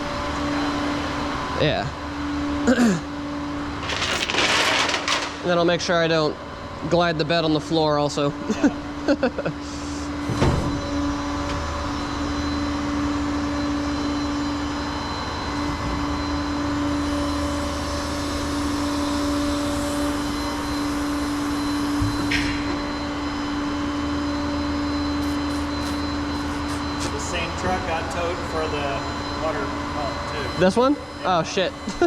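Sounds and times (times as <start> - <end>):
hydraulic pump whine: 4.8 - 32.0.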